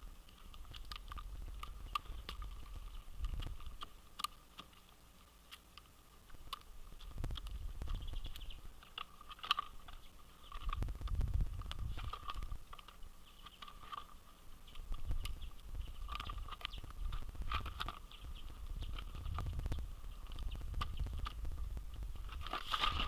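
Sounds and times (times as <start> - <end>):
wind rumble on microphone: 0.0 - 3.8, 7.0 - 8.8, 10.5 - 12.7, 14.7 - 23.0
birds pecking seed: 0.0 - 23.0.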